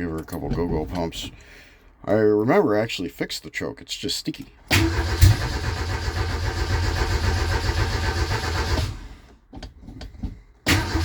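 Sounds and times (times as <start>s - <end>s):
starter motor cranking engine: 4.7s - 9.3s, 10.7s - 11.0s.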